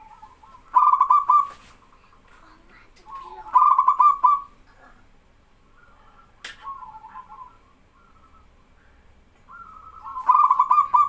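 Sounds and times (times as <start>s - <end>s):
dove cooing: 0.0s - 1.7s, 3.1s - 4.6s, 9.5s - 11.0s.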